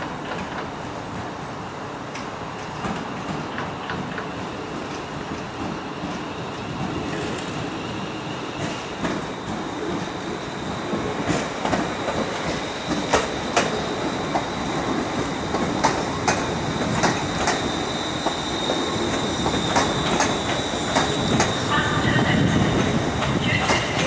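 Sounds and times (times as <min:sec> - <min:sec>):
train low rumble: 0:02.1 - 0:24.0
train wheels clicking over joints: 0:08.5 - 0:24.0.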